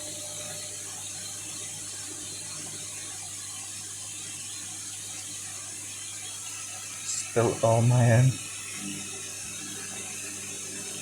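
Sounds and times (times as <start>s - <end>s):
washing machine humming: 6.4s - 8.7s
constant hiss: 6.7s - 8.6s.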